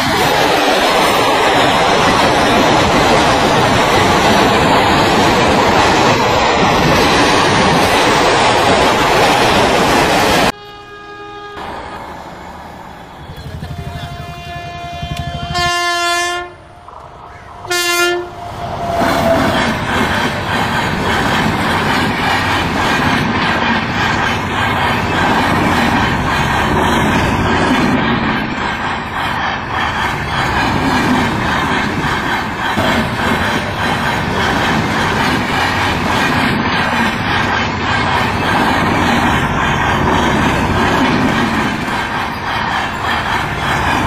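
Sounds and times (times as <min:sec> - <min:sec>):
train wheels rolling on rails: 0:00.0 - 0:10.6, 0:11.6 - 0:44.0
train horn blowing: 0:10.5 - 0:11.7, 0:13.5 - 0:16.9, 0:17.6 - 0:19.4.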